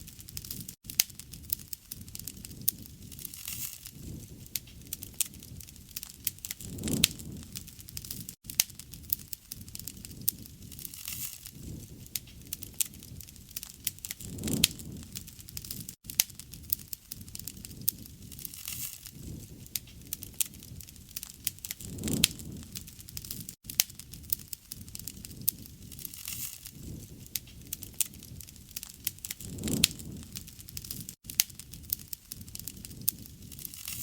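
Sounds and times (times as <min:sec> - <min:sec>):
campfire crackling: 0:00.0 - 0:34.0
low rush of flame: 0:00.0 - 0:34.0
wood snapping and popping: 0:00.0 - 0:34.0.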